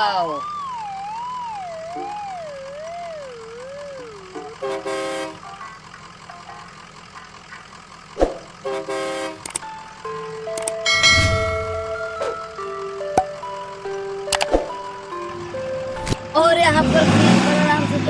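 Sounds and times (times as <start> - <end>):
wavering electronic siren: 0.0 - 4.6, 11.6 - 12.8
toy horn honks: 4.5 - 5.5, 8.6 - 9.6.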